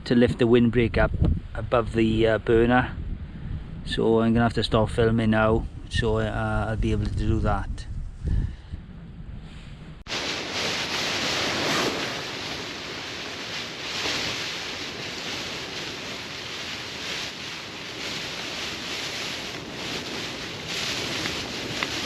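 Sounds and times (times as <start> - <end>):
wind and rain lashing a tent: 10.0 - 22.0.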